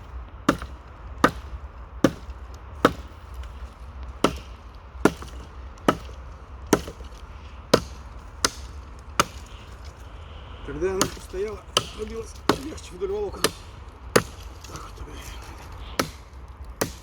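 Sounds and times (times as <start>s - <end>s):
hatchet chopping dry wood: 0.0s - 17.0s.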